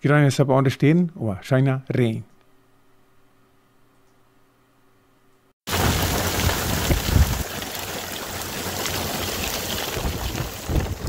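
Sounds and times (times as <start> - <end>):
heavy rain on road: 5.7 - 11.0
wind buffeting microphone: 6.7 - 7.5, 9.9 - 11.0.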